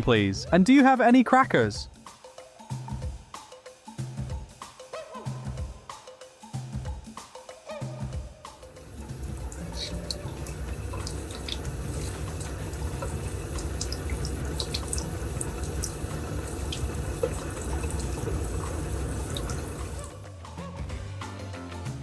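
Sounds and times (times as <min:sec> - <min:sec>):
water running: 0:08.6 - 0:20.2.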